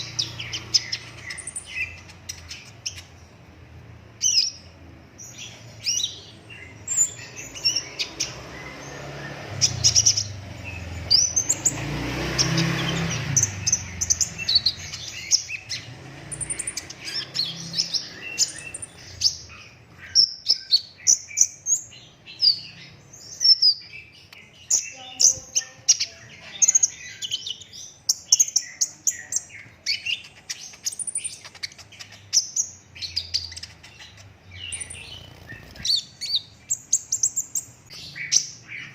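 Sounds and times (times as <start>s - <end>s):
sunbird chirps and trills: 0.0s - 38.9s.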